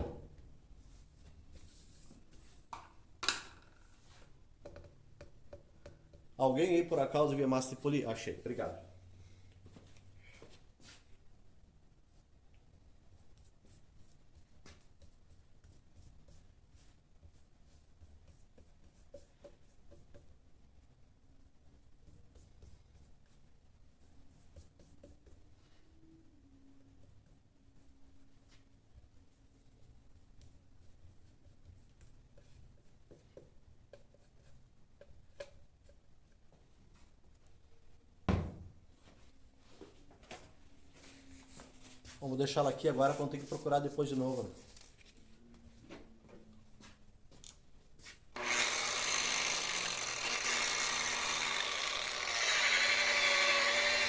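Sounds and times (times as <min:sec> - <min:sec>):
louder thump: 0:38.3 - 0:38.8.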